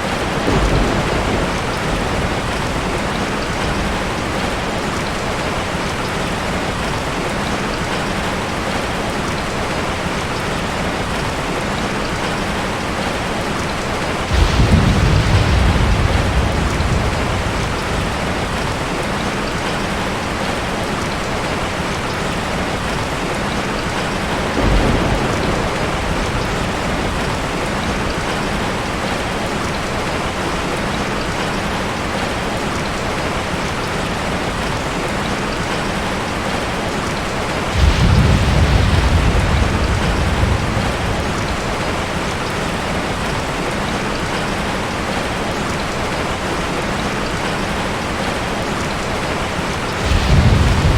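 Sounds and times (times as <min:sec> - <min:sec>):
thunder rumbling: 0:00.0 - 0:07.0, 0:14.2 - 0:20.7, 0:22.0 - 0:29.4, 0:37.1 - 0:44.3, 0:49.4 - 0:50.9
heavy rain falling: 0:00.0 - 0:50.9.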